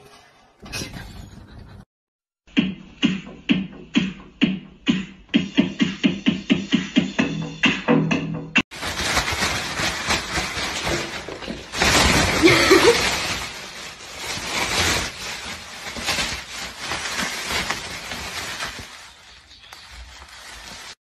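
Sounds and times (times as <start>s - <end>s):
plastic bag rustling: 8.7s - 21.0s.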